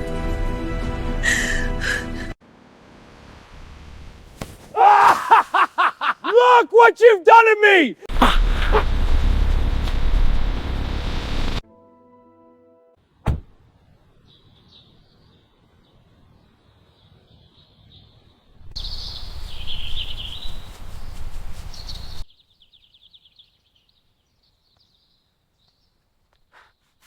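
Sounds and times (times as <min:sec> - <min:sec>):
birds chirping: 0:14.2 - 0:26.9.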